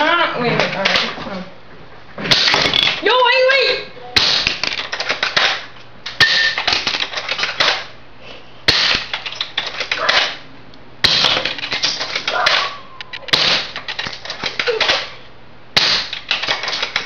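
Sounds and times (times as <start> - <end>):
airsoft rifle shots: 2.3 - 2.8, 4.2 - 7.9, 8.7 - 10.4, 11.0 - 15.2, 15.8 - 17.0.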